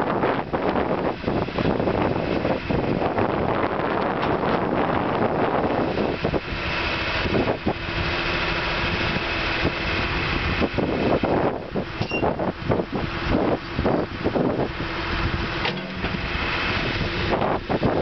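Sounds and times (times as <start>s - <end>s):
skid steer engine running: 0.1s - 18.0s
short knocks and clanks: 15.6s - 16.4s.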